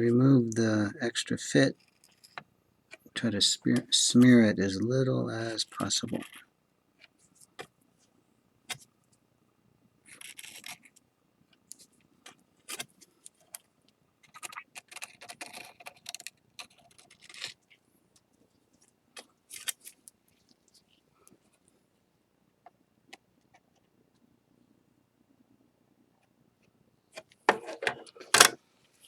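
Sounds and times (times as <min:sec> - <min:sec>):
tool scraping ceramic plate: 0:27.5 - 0:28.6.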